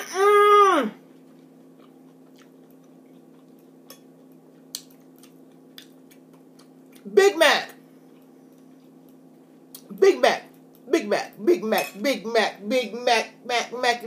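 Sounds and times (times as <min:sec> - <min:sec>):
drawn-out vocal exclamation: 0:00.0 - 0:01.0
quiet chewing: 0:01.0 - 0:07.1, 0:08.0 - 0:09.9, 0:10.5 - 0:10.9.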